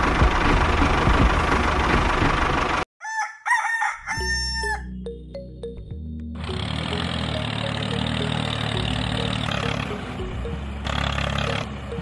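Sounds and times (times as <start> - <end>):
engine running: 0.0 - 2.9, 5.1 - 12.0
rooster crowing: 3.0 - 4.9
held musical tones: 4.6 - 12.0.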